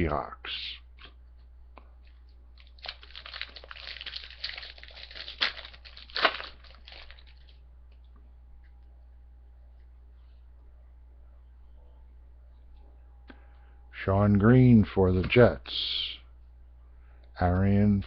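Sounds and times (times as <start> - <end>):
foil wrapper crinkling and tearing: 2.6 - 7.6.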